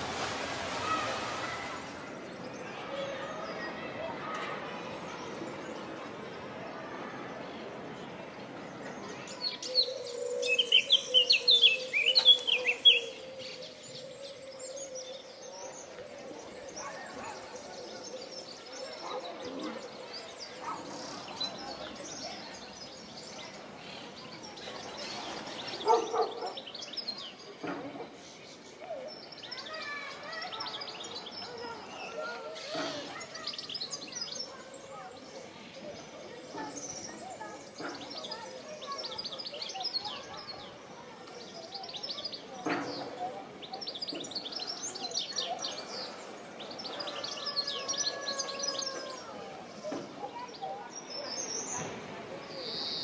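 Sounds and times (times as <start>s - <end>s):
songbirds twittering: 0.9s - 53.0s
small songbirds chirping: 8.3s - 27.5s.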